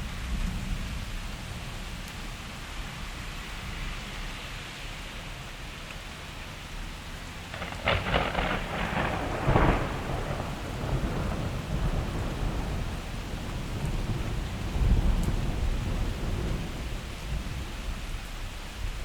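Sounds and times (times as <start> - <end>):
heavy rain: 0.0 - 19.0
low thunder rumble: 7.4 - 19.0
thunderclap cracking: 7.5 - 17.5.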